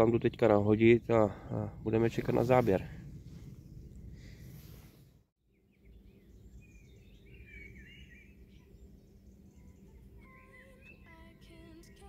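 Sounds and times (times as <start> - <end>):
faint outdoor ambience: 0.0 - 12.0
small bird twittering: 5.6 - 11.1.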